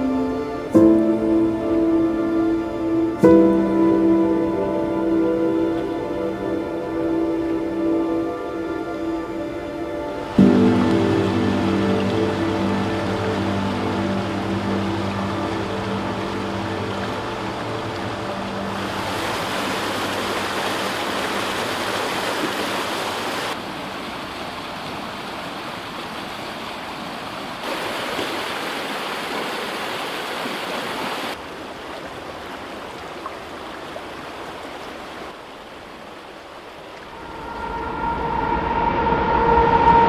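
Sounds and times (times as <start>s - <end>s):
rushing river water: 0.0s - 38.8s.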